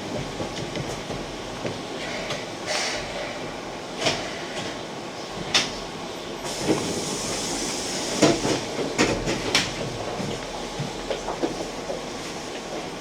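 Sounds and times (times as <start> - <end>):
electric train humming and hissing: 1.9 - 9.7.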